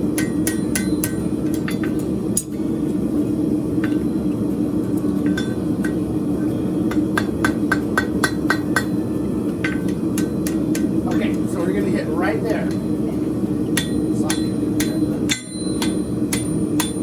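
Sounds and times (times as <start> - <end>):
hammer striking steel on anvil: 0.1 - 2.7, 3.8 - 4.4, 5.2 - 6.1, 6.9 - 11.6, 12.6 - 12.9, 13.7 - 17.0.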